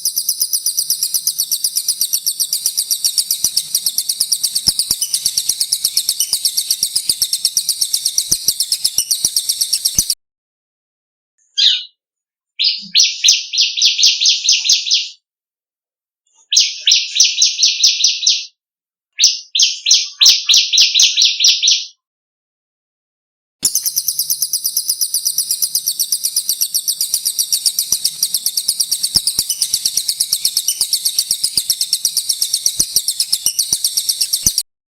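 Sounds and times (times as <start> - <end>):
songbird trilling: 0.0 - 10.2, 23.6 - 34.6.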